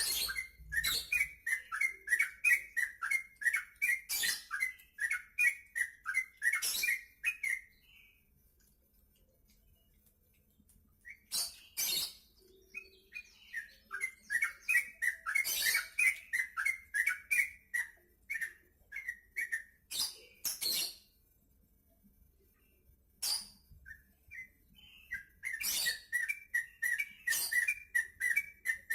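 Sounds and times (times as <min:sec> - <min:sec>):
bird singing bubbly chirps: 0:00.0 - 0:08.2, 0:11.1 - 0:19.9, 0:23.8 - 0:28.9.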